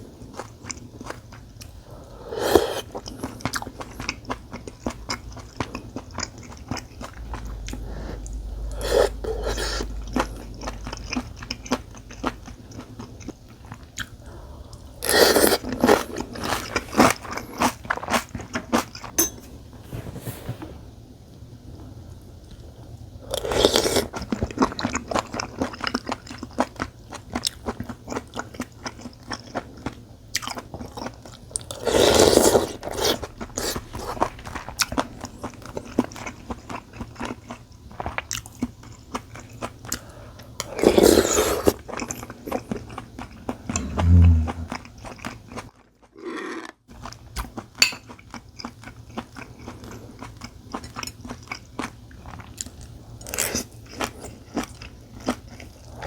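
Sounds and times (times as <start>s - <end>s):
short low hum: 6.9s - 11.7s, 32.7s - 36.3s, 43.7s - 44.8s.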